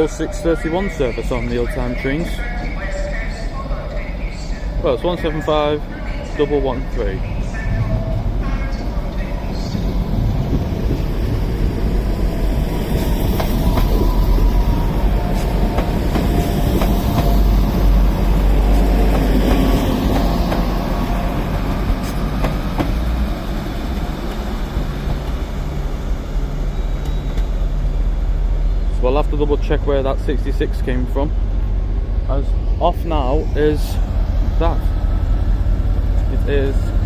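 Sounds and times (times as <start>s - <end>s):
train rumbling on rails: 0.0s - 37.0s.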